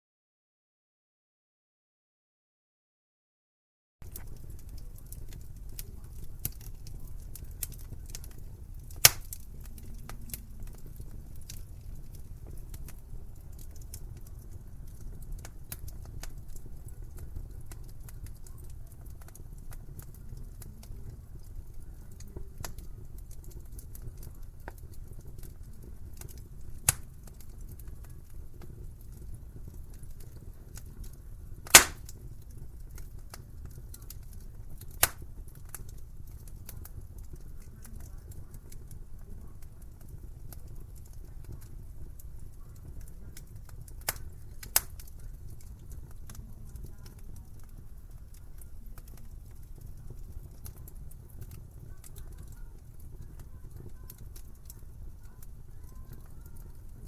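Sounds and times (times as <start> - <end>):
low rumble of flames: 4.0 - 57.0
small fire crackles: 4.0 - 57.0
sharp wood pops: 9.0 - 9.4, 31.7 - 32.1, 35.0 - 35.2.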